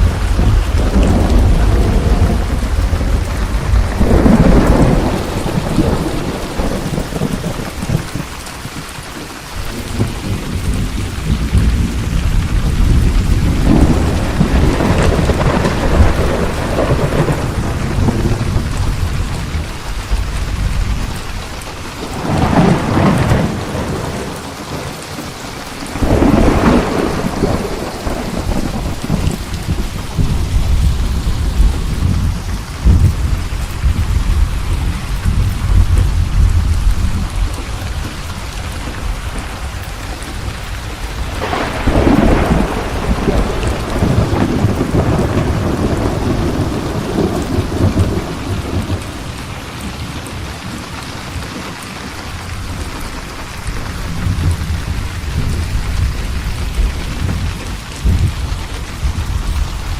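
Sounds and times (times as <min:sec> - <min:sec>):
rolling thunder: 0:00.0 - 0:51.8, 0:52.4 - 0:59.9
heavy rain: 0:00.0 - 0:59.9.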